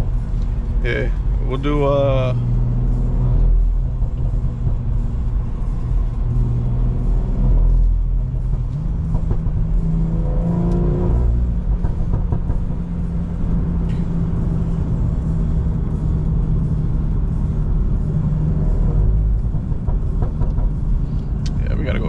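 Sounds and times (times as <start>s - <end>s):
car engine droning: 0.0s - 22.0s.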